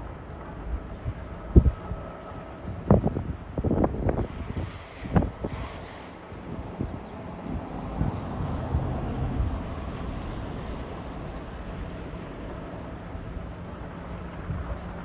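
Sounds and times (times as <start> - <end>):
locomotive engine droning: 0.0 - 15.0
wind buffeting microphone: 0.0 - 15.0.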